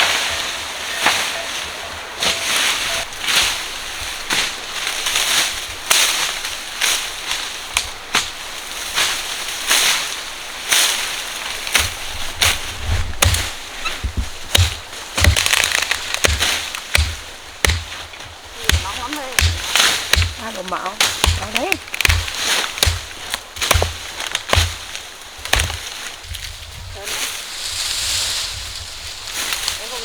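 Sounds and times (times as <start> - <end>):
rough scraping strokes: 0.0 - 6.2
low thuds: 11.7 - 27.0.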